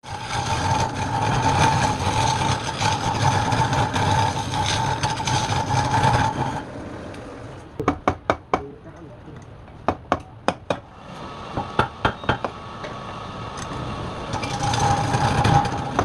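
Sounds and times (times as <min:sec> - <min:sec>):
wood lathe whining: 0:00.0 - 0:06.7, 0:11.1 - 0:16.0.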